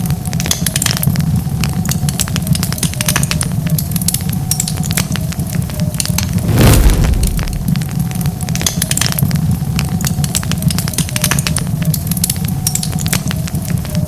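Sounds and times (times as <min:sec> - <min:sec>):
low rumble of flames: 0:06.2 - 0:08.4
rush of flames: 0:06.3 - 0:08.0
wood fire crackling: 0:06.3 - 0:08.0.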